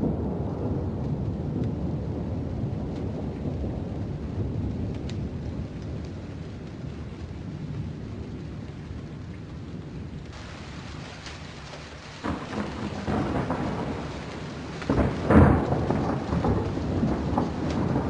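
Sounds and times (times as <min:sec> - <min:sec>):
low rumbling thunder: 0:00.0 - 0:18.0
steady rain: 0:00.0 - 0:18.0
sudden thunderclap: 0:12.2 - 0:18.0.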